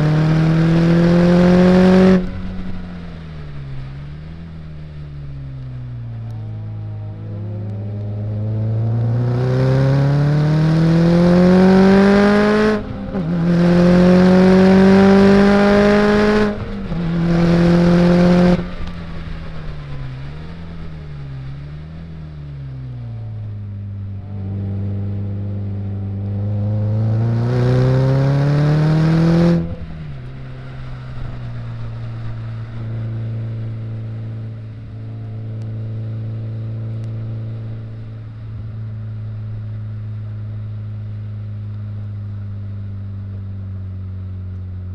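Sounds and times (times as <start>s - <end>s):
race car engine revving: 0.0s - 2.8s, 6.0s - 18.9s, 23.1s - 37.9s.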